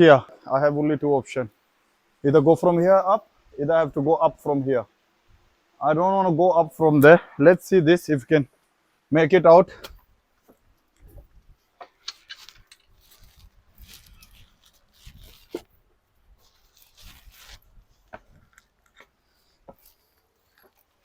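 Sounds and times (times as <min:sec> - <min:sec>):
rustling: 0:09.8 - 0:21.0
footsteps on gravel in stream: 0:11.8 - 0:15.8.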